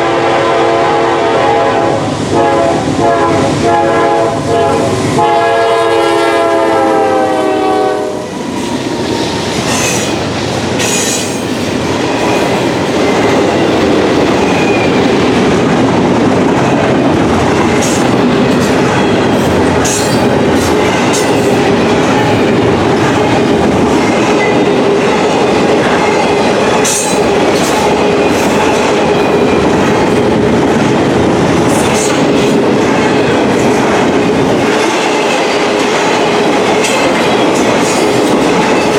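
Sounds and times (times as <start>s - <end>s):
diesel locomotive horn: 0.0s - 8.3s
rail clicks: 2.0s - 38.9s
freight cars rumbling and clattering: 8.3s - 38.9s.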